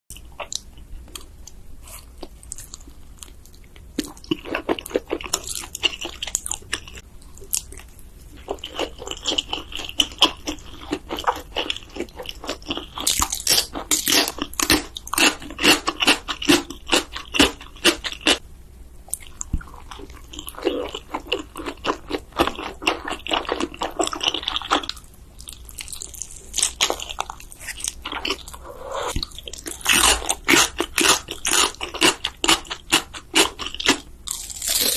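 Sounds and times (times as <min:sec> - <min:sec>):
person chewing crunchy noodles: 0:00.1 - 0:18.4, 0:19.1 - 0:34.9.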